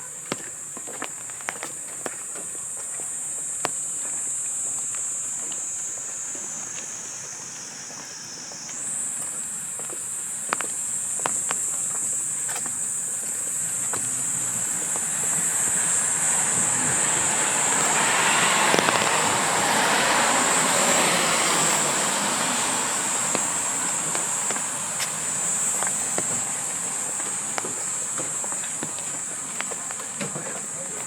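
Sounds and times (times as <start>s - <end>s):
insect chorus shrilling: 0.0s - 31.0s
vehicle passing: 13.5s - 31.0s.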